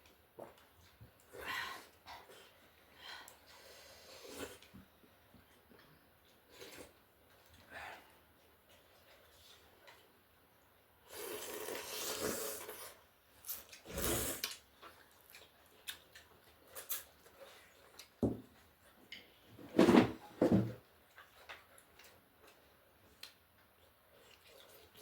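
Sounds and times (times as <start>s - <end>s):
mouth eating noises: 11.0s - 18.2s.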